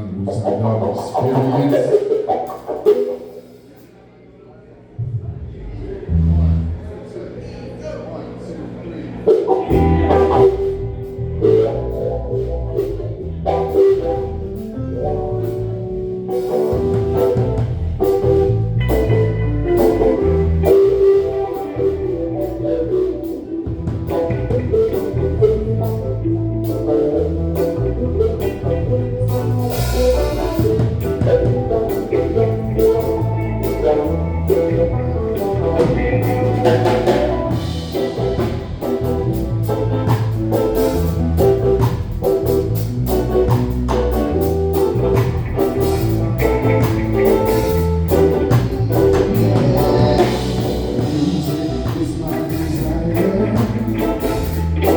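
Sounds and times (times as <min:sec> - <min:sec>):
live band music: 0:00.0 - 0:03.9, 0:05.0 - 0:07.0, 0:09.2 - 0:54.9.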